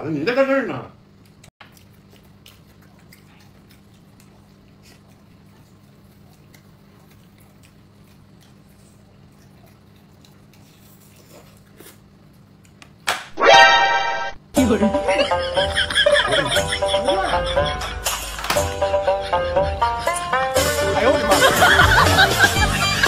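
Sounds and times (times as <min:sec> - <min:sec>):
quiet chewing: 0:01.1 - 0:13.0.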